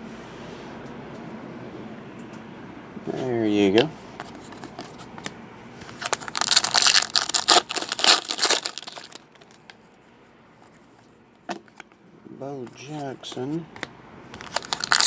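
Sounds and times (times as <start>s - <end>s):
card wrapper tearing and crinkling: 5.9s - 9.6s, 14.4s - 15.0s.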